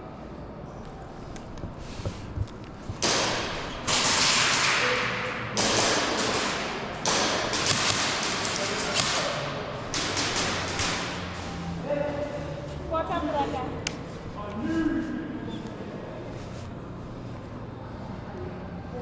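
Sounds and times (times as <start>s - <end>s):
airsoft guns firing bursts: 2.9s - 11.4s.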